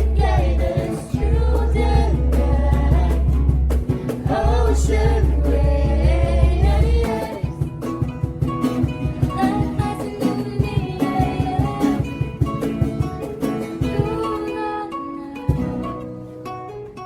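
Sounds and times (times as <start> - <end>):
plucked acoustic guitar music: 0.0 - 17.0.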